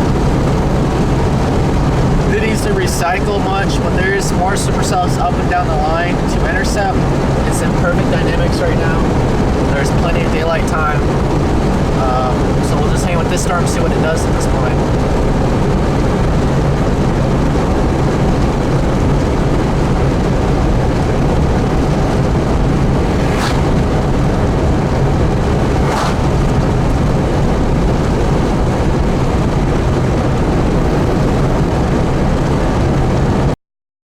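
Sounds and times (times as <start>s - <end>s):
car road and engine noise: 0.0s - 33.5s
low hum: 20.5s - 32.2s
brief sounds: 21.8s - 24.4s, 25.4s - 26.7s.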